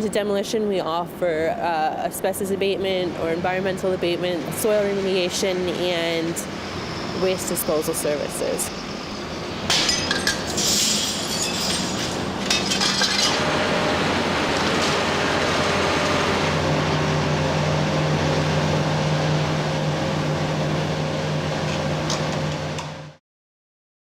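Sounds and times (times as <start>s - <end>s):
heavy machine engine running: 1.9s - 23.2s
glass and metal breaking: 9.7s - 13.5s.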